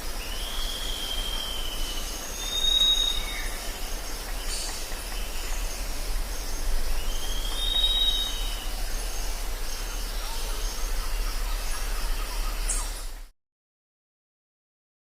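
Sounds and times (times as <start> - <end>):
constant low hum: 0.0 - 13.3
insects hissing and trilling: 0.0 - 13.3
clear whistled call: 0.4 - 3.6, 7.0 - 8.7.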